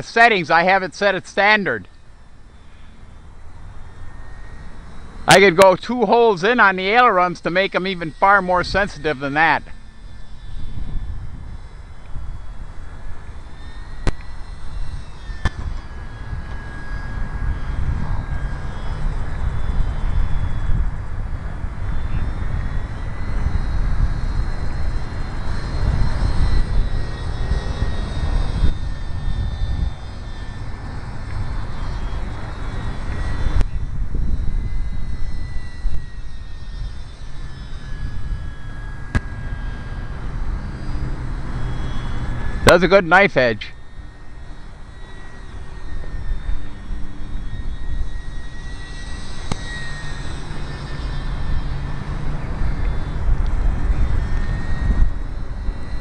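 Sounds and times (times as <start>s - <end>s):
small electric motor whine: 0.0s - 56.0s
wind buffeting microphone: 3.0s - 40.4s, 50.8s - 56.0s.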